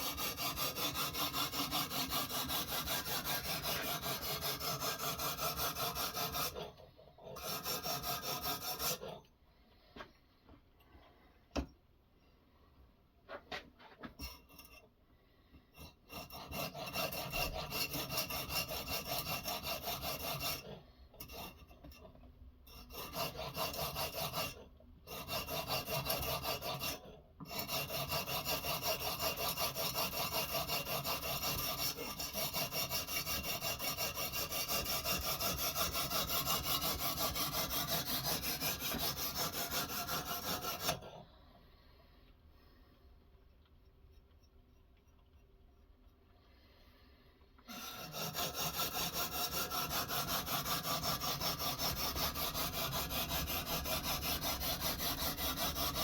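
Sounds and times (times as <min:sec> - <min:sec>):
knife scraping on sharpening stone: 0:14.2 - 0:14.9, 0:47.7 - 0:56.0.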